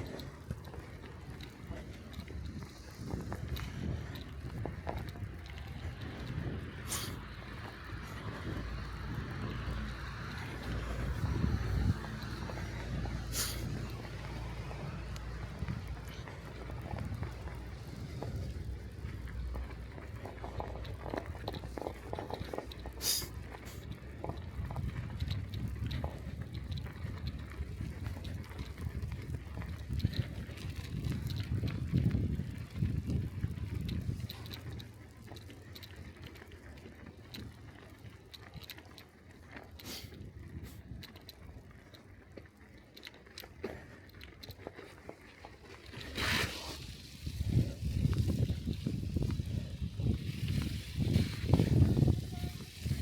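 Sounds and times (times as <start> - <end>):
low steady rumble: 0.0 - 36.2
bicycle tyres crunching snow: 0.0 - 53.0
bike clicks and rattles: 0.0 - 53.0.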